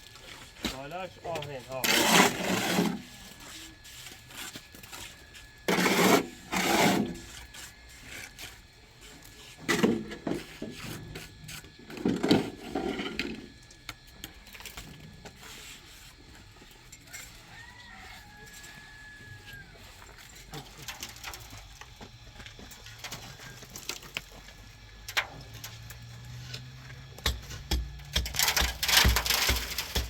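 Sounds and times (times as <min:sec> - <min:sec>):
rough scraping and rubbing: 0:01.5 - 0:13.3.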